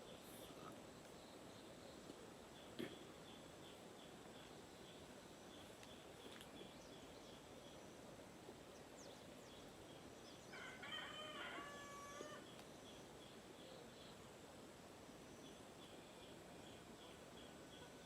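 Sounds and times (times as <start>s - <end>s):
rooster crowing: 10.5s - 12.4s.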